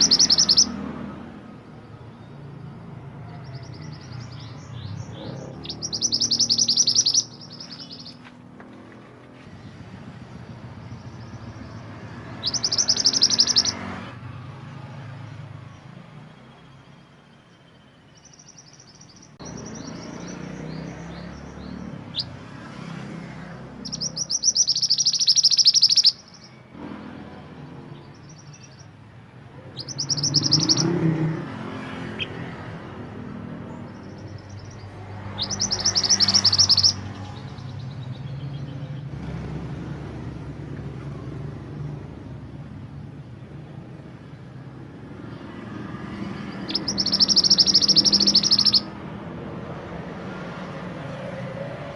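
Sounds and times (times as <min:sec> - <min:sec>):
songbird trilling: 0:00.0 - 0:00.8, 0:03.3 - 0:08.4, 0:10.8 - 0:13.9, 0:17.6 - 0:22.4, 0:23.8 - 0:26.7, 0:28.0 - 0:29.0, 0:29.6 - 0:31.4, 0:33.1 - 0:39.1, 0:46.2 - 0:49.0.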